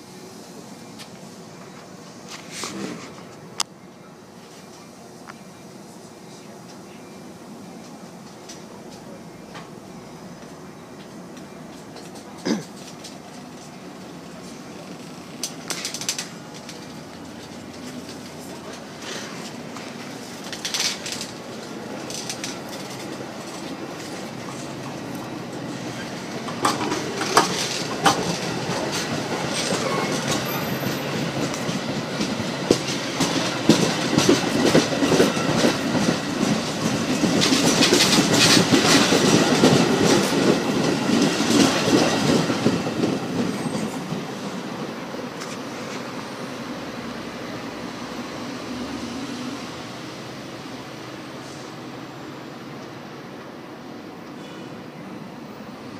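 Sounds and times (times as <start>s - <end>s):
train rumbling past: 0.0s - 55.9s
wheels clicking over rail joints: 14.4s - 44.6s.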